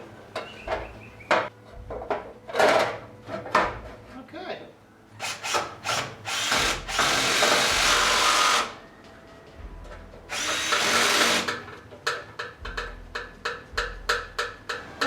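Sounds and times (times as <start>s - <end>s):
handheld power tool running: 5.2s - 8.8s, 10.3s - 11.6s.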